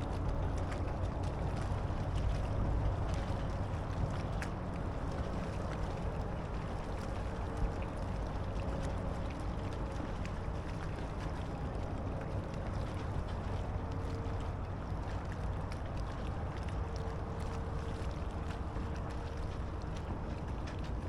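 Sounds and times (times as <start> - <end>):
water lapping against kayak hull: 0.0 - 21.0
wind rumble on microphone: 0.0 - 21.0.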